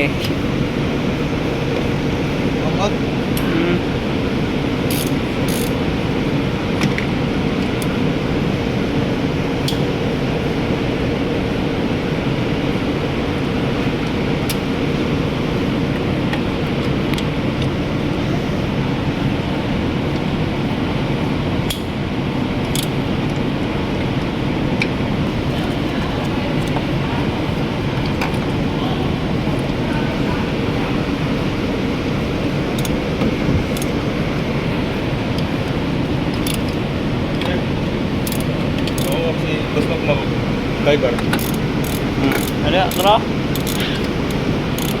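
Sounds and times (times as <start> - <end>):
mechanical background noise: 0.0 - 45.0
hand tools clicking and tapping: 36.4 - 36.8, 38.2 - 39.2, 41.2 - 45.0.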